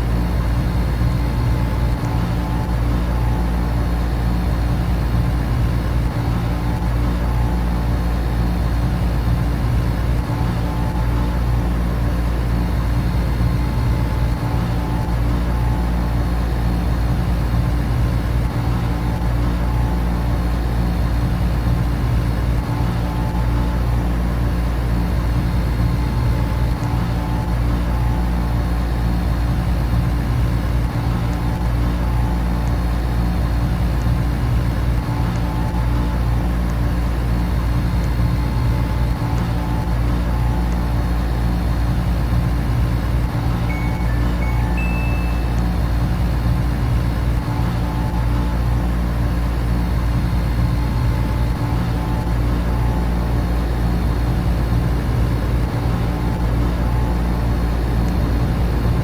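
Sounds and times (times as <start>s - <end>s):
air conditioner and fans humming: 0.0s - 59.0s.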